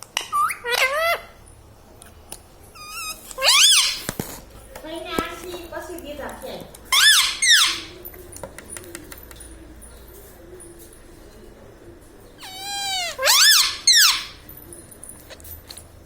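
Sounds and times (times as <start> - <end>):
parrot calling: 0.0 - 1.4, 2.7 - 4.2, 6.9 - 8.1, 12.4 - 14.5.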